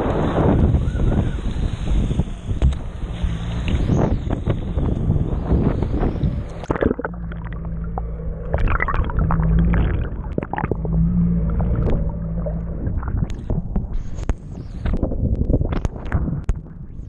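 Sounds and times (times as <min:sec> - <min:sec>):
jet ski engine humming: 0:00.0 - 0:14.4
wind on microphone: 0:00.0 - 0:17.0
water splashing: 0:05.8 - 0:14.4.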